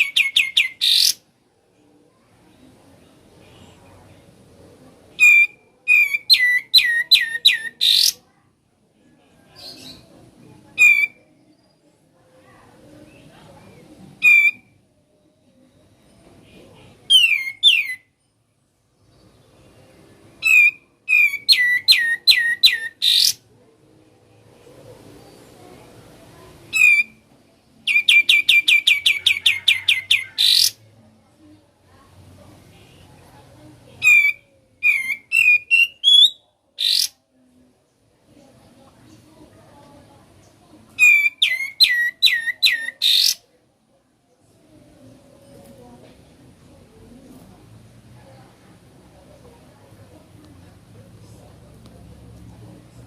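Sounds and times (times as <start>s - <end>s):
bird singing whistled notes: 0.0s - 1.2s, 5.2s - 8.2s, 14.2s - 14.6s, 17.1s - 18.1s, 20.4s - 23.4s, 27.9s - 30.7s, 34.0s - 37.1s, 41.0s - 43.4s
songbird calling: 0.0s - 1.2s, 5.2s - 8.2s, 10.8s - 11.2s, 14.2s - 14.6s, 17.1s - 18.0s, 20.4s - 23.4s, 27.9s - 30.8s, 34.0s - 37.2s, 41.0s - 43.4s.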